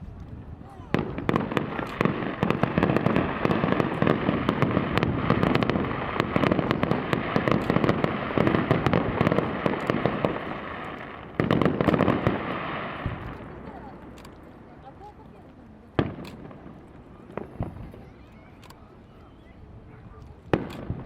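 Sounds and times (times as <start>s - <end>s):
deep firework booms: 0.0s - 14.0s, 15.9s - 18.1s, 20.5s - 21.0s
firework cracks and crackling: 0.0s - 19.0s, 19.6s - 21.0s.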